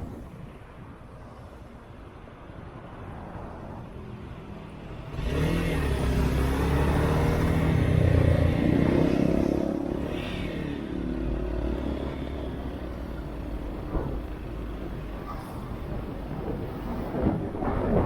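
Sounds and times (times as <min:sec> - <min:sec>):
wind and road noise: 0:00.0 - 0:18.0.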